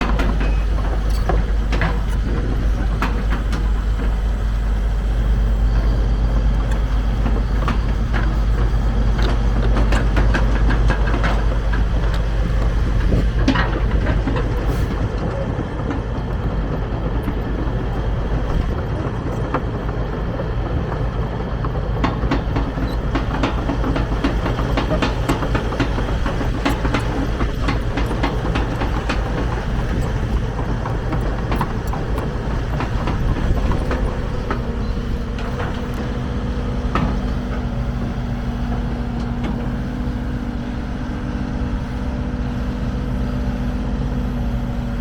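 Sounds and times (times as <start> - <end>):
metallic clanks and knocks: 0.0 - 4.6, 5.2 - 15.0, 22.0 - 39.9
diesel engine running: 0.0 - 45.0.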